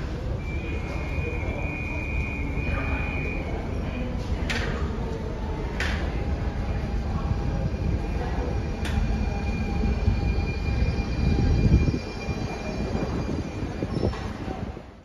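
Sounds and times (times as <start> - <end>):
train wheels rumbling on rails: 0.0 - 15.0
high steady squeal: 0.2 - 4.1, 6.8 - 14.2.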